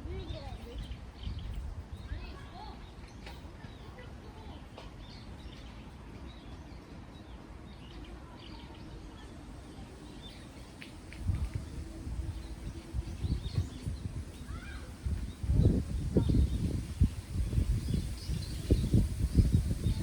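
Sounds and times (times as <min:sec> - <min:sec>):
wind buffeting microphone: 0:00.0 - 0:02.8, 0:10.8 - 0:20.0
low rush of wind: 0:00.0 - 0:20.0
small birds chirping: 0:00.0 - 0:20.0.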